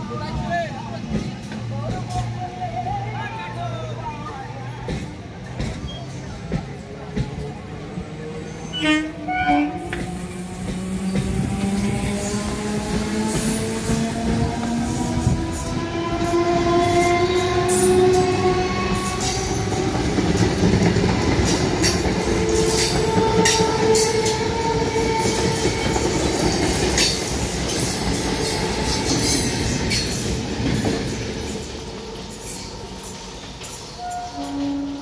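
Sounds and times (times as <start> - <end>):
train passing: 0.0 - 35.0.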